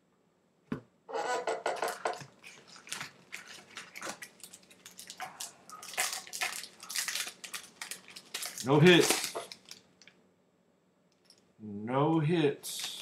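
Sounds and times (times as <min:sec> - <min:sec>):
card wrapper crinkling and rustling: 0:01.8 - 0:10.1, 0:12.7 - 0:13.0.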